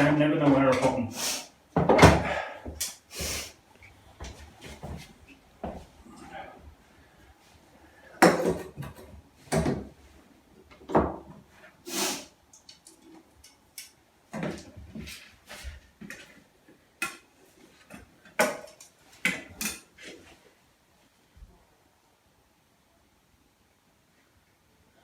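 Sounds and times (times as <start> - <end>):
tools and wood clattering: 8.2 - 9.9.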